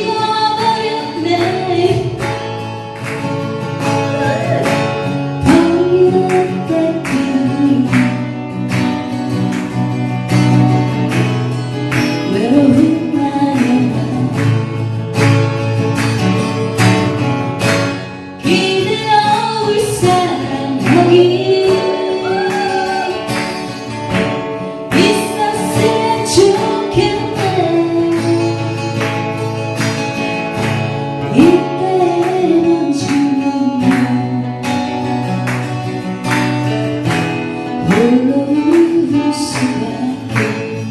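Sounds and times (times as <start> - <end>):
acoustic guitar strumming: 0.0 - 40.9
person singing: 4.1 - 8.1, 18.4 - 23.3.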